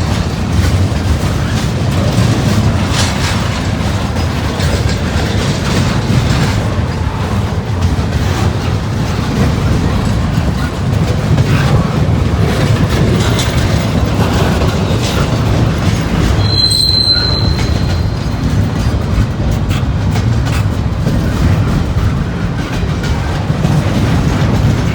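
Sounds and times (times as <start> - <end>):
train cars rolling on rails: 0.0 - 24.9
high-pitched wheel squeal: 15.8 - 19.2.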